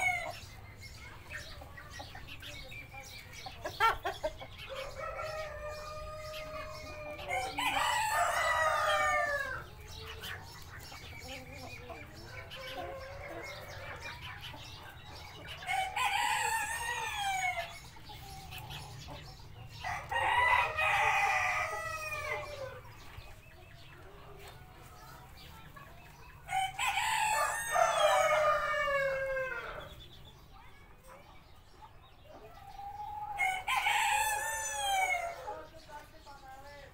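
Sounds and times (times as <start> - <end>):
chickens clucking: 0.0 - 36.9
rooster crowing: 26.5 - 29.8.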